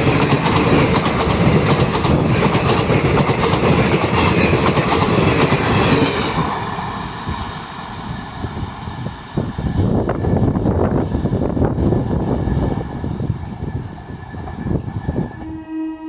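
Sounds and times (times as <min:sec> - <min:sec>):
train wheels clattering: 0:00.0 - 0:10.3
train rumble: 0:00.0 - 0:16.0.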